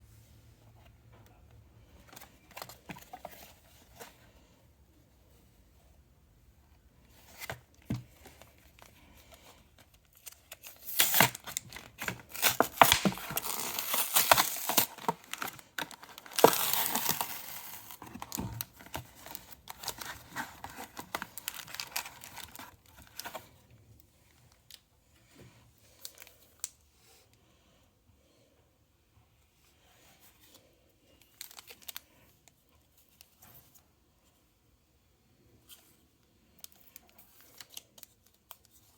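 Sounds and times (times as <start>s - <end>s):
plastic packaging tearing and crinkling: 10.1s - 23.4s.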